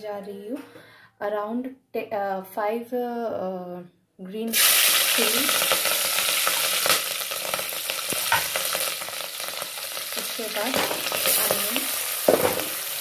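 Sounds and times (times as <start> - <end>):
chillies sizzling in hot oil: 4.5 - 13.0.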